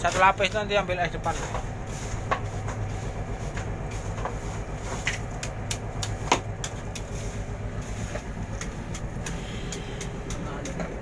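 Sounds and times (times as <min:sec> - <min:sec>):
sharp knocks and clatters: 0:00.0 - 0:07.2
boat engine droning: 0:00.0 - 0:11.0.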